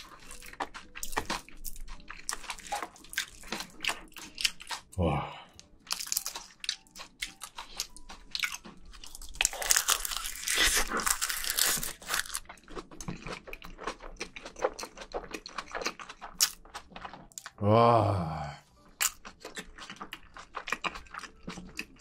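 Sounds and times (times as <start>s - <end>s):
crunchy bite into food: 9.4s - 12.4s
wet chewing with lip smacks: 12.4s - 17.6s, 19.0s - 22.0s.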